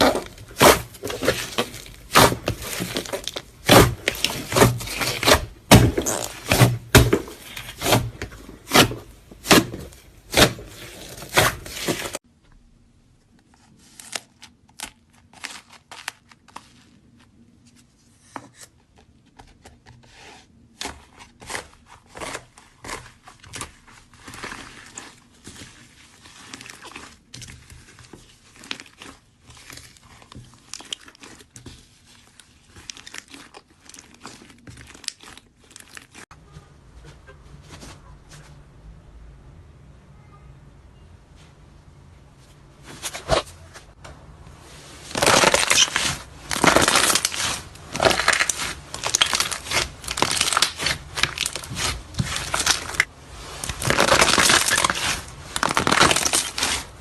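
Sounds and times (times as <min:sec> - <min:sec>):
slime squelching: 0:00.0 - 0:12.2, 0:20.2 - 0:36.3, 0:44.6 - 0:57.0.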